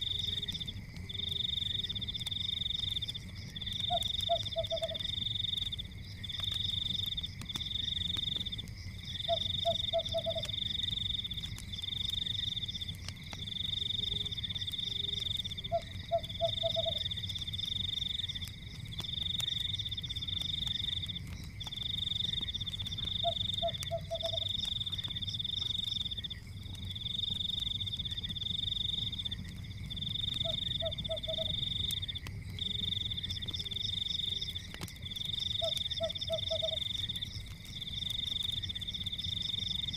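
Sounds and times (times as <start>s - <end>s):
crackling fire: 0.0s - 39.9s
lower pulsing animal call: 9.2s - 10.5s, 23.2s - 24.5s, 30.4s - 31.6s.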